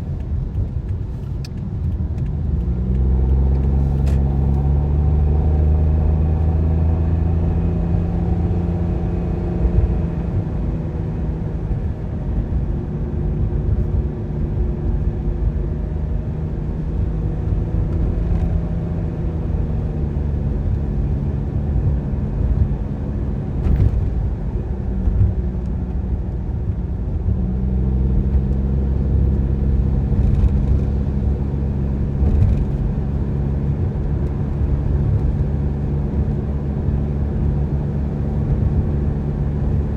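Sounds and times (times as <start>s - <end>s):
car engine hum: 0.0s - 39.9s
road rumble: 0.0s - 39.9s.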